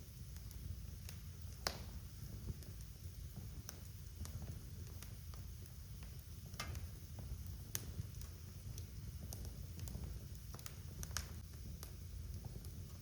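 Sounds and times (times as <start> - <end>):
fire crackling and popping: 0.0 - 13.0
flames rumbling: 0.0 - 13.0.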